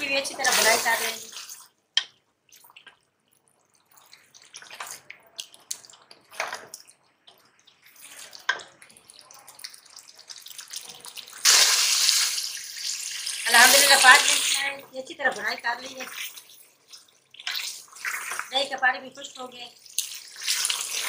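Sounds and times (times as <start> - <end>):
food sizzling: 0.0 - 21.0.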